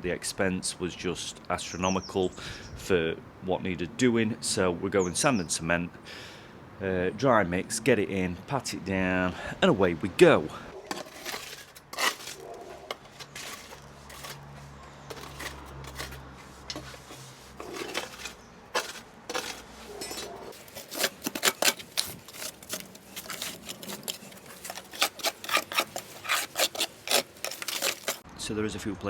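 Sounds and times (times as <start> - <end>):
metal bar scraping mortar: 10.7 - 28.3.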